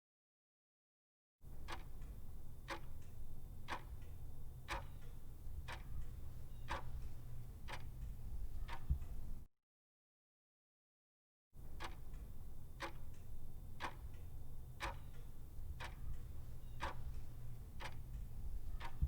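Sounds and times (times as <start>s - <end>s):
steady low hum: 1.5s - 9.5s, 11.6s - 19.0s
sharp clock-like ticks: 1.6s - 9.5s, 11.7s - 19.0s.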